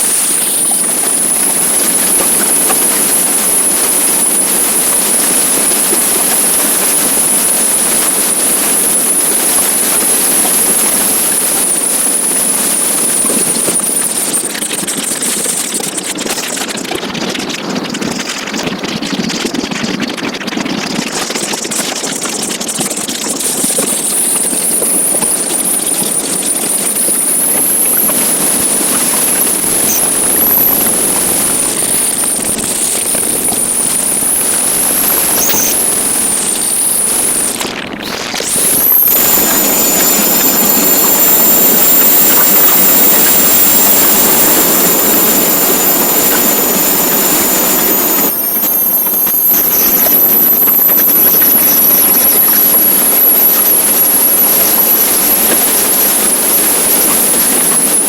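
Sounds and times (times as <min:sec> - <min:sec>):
high thin whine: 0:00.0 - 0:14.5, 0:23.4 - 0:58.0
wind noise: 0:23.4 - 0:58.0
motorcycle engine: 0:25.1 - 0:52.5.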